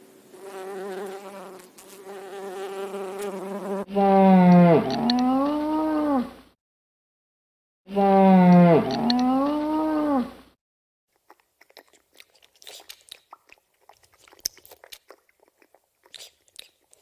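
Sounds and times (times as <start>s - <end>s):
fish slurping at water surface: 11.2s - 17.0s.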